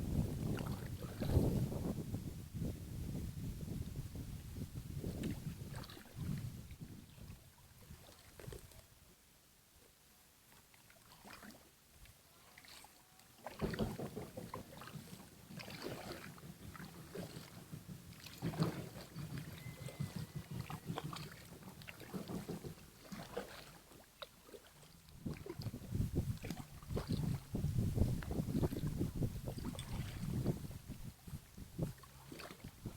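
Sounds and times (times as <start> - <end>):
wind on microphone: 0.0 - 8.7, 15.8 - 22.8, 25.1 - 32.9
water splashing against boat: 0.0 - 9.0, 10.5 - 32.9.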